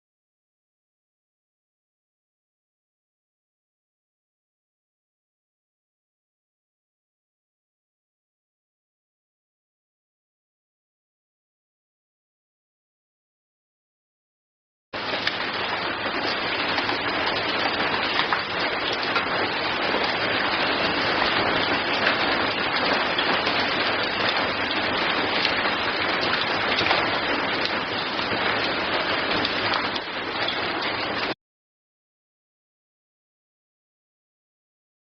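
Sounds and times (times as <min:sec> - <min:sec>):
steady rain falling: 0:15.0 - 0:31.4.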